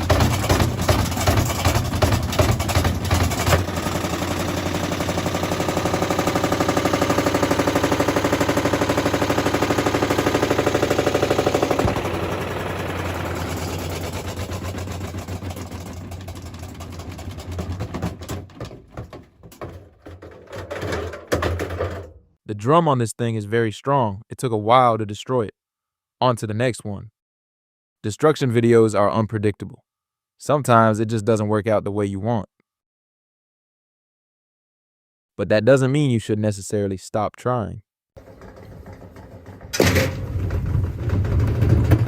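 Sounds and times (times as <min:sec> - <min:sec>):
bricks hammering washing machine drum: 0:00.0 - 0:22.2, 0:38.2 - 0:42.0.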